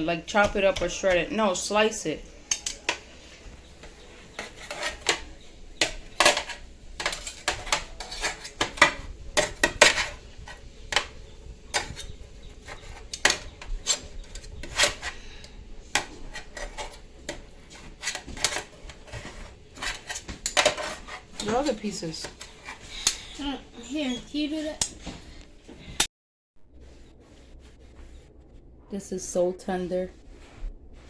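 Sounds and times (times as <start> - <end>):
knife scraping a hard surface: 2.4 - 23.5.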